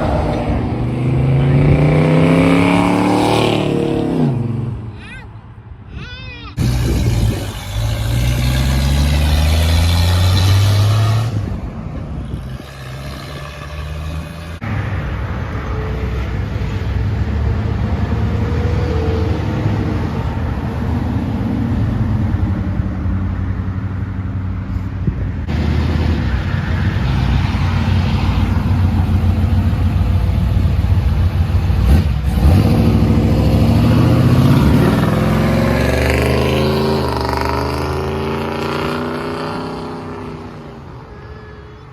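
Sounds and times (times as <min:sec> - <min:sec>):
car engines accelerating: 0:00.0 - 0:05.0, 0:06.5 - 0:41.2
engine rumble: 0:00.0 - 0:41.9.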